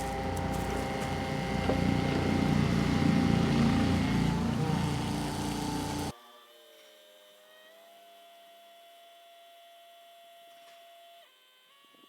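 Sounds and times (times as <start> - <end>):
tractor diesel engine running: 0.0 - 6.1
faint electric whine and hum: 0.0 - 7.0.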